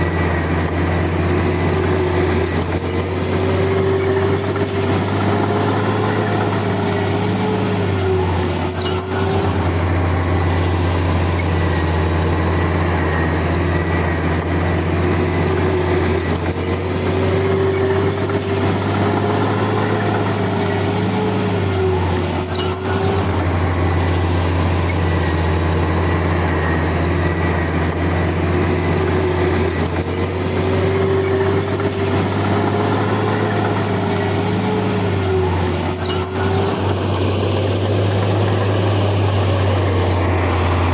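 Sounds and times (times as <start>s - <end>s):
bulldozer diesel engine droning: 0.0s - 40.9s.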